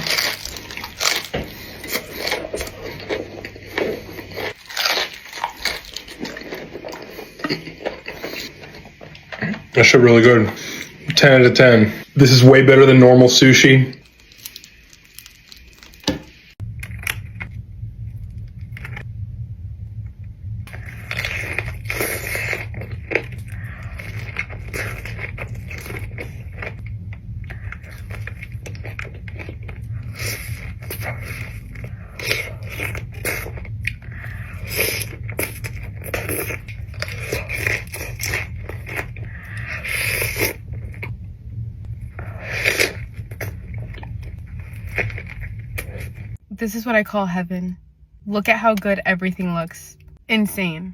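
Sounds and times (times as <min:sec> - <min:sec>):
crunchy chewing: 0:00.0 - 0:09.7, 0:13.9 - 0:17.4, 0:20.7 - 0:41.1, 0:42.0 - 0:46.4
steady low hum: 0:00.0 - 0:50.9.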